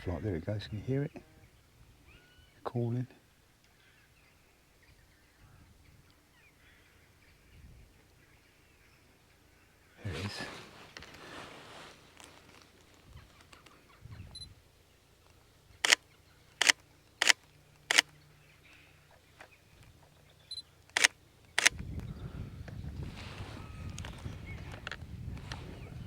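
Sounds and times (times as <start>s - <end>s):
camera shutter clicking: 16.6s - 18.1s, 20.9s - 21.8s.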